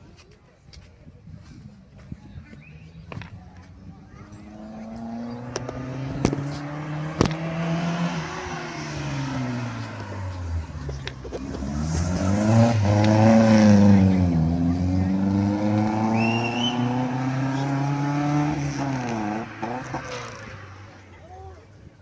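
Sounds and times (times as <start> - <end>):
racing car engine revving: 4.2 - 21.2.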